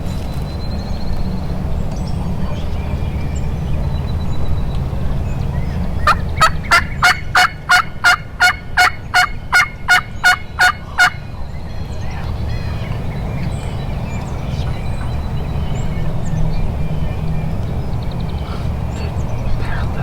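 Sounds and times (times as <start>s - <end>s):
low rumble: 0.0s - 20.0s
turkey yelping: 6.0s - 11.3s.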